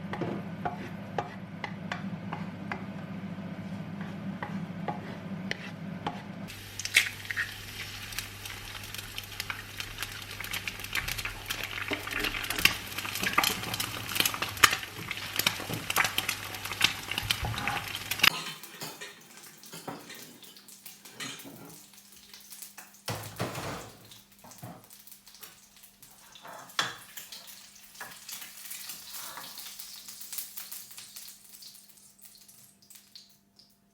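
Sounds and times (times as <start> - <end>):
food sizzling in a frying pan: 6.5 - 33.5.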